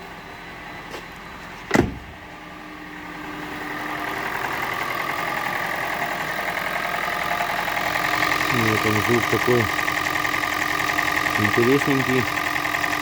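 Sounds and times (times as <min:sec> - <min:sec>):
car engine running with a knock: 0:00.9 - 0:02.3, 0:04.2 - 0:13.0
thump: 0:01.7 - 0:02.2.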